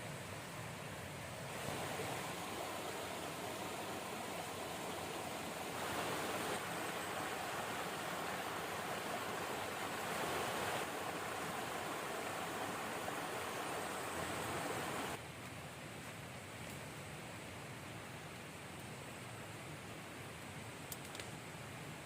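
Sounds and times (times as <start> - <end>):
river rushing: 0.0 - 15.2.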